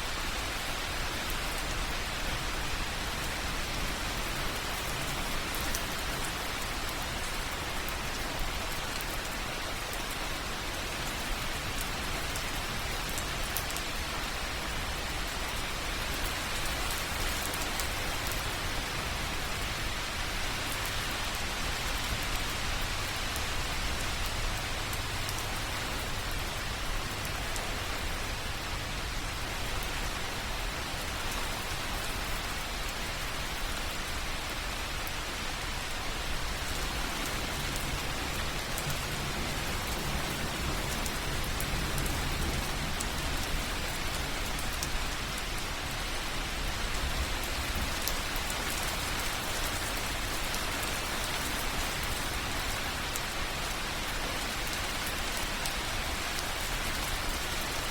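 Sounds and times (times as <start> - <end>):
rain dripping: 0.1 - 57.9.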